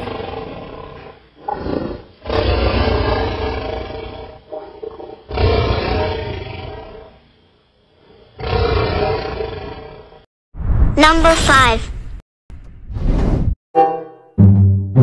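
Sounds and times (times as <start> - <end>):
tiger roaring: 0.0 - 7.2, 8.4 - 10.1.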